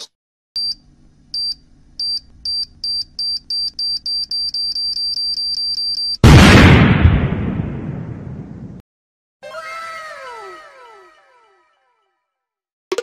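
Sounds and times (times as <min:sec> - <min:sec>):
explosion sound effect: 0:06.2 - 0:08.8.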